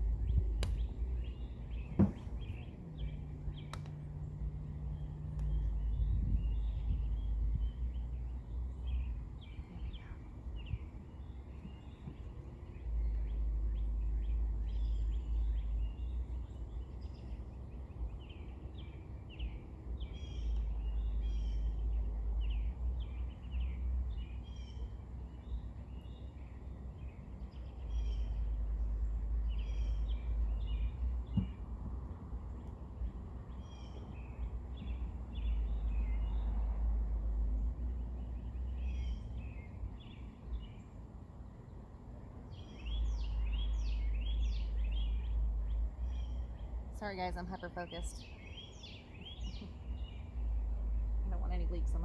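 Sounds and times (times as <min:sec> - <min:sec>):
small birds chirping: 0:00.0 - 0:52.0
sharp click: 0:00.6 - 0:00.8.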